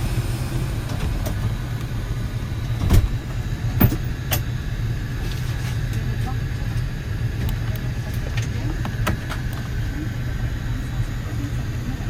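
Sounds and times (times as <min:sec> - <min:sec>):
aircraft cabin low rumble: 0:00.0 - 0:12.0
cabin door clunks: 0:02.8 - 0:03.2.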